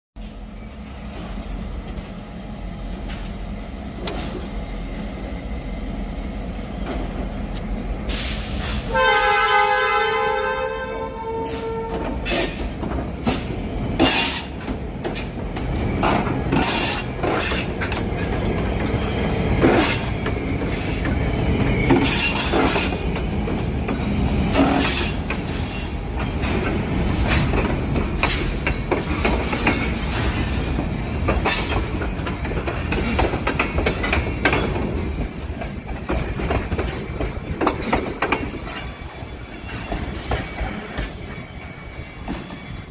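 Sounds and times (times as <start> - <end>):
freight train rumbling: 0.2 - 42.9
train horn blast: 8.8 - 12.3
wheels clacking over rail joints: 11.9 - 42.9.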